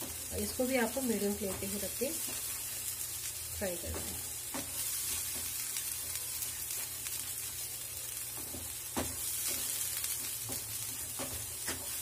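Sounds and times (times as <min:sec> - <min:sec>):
paste sizzling in oil: 0:00.0 - 0:12.0
spatula knocking on pan: 0:08.4 - 0:12.0.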